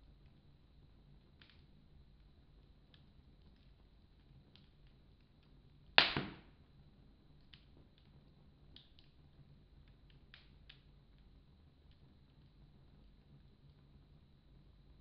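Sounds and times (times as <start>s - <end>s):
wood fire crackling: 0.0s - 15.0s
loud sharp fire pop: 6.0s - 6.6s.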